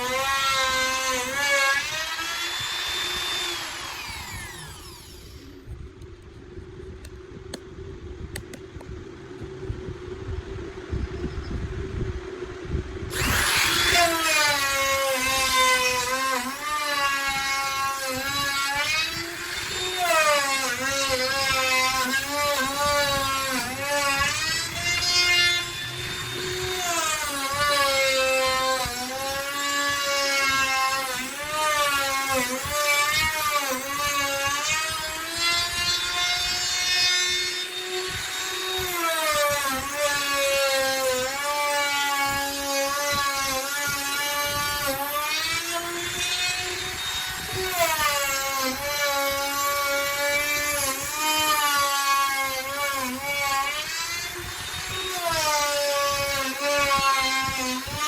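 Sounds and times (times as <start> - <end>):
electric router whining: 0.0 - 6.2, 13.1 - 58.0.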